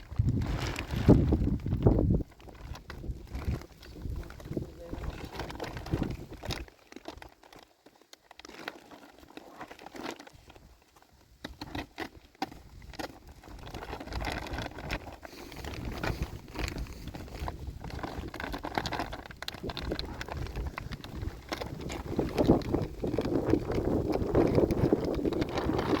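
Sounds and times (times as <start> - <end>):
wind on microphone: 0.0 - 6.6, 13.6 - 26.0
plastic sheeting rustling: 0.0 - 26.0.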